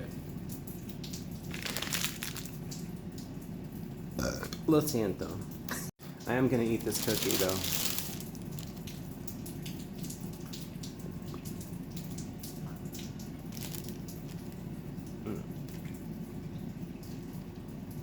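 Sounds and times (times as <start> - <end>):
cookie crinkles and clicks: 1.1 - 2.8, 6.7 - 9.0, 13.5 - 14.7.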